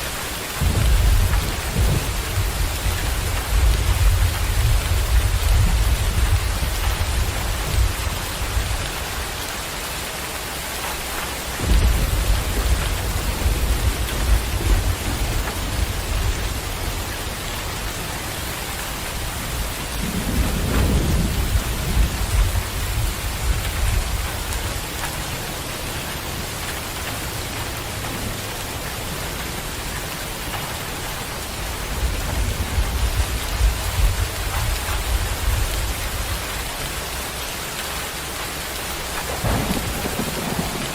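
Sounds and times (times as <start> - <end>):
steady rain: 0.0 - 40.9
rolling thunder: 0.6 - 9.1, 11.6 - 25.6, 31.6 - 36.7, 39.2 - 40.9.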